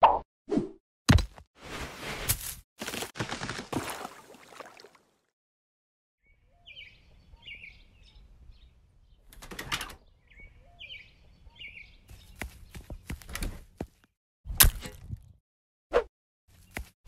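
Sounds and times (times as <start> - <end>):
songbird chirping: 6.2 - 13.3.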